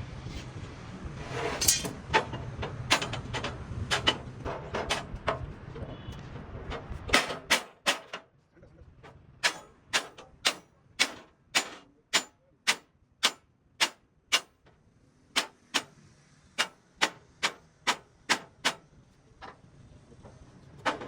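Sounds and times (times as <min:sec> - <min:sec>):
hammer on metal: 0:09.4 - 0:14.6, 0:15.4 - 0:16.0, 0:16.6 - 0:18.8.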